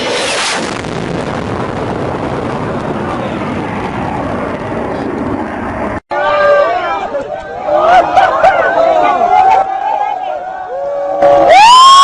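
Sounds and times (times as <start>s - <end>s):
low-flying jet engine roar: 0.0s - 6.0s.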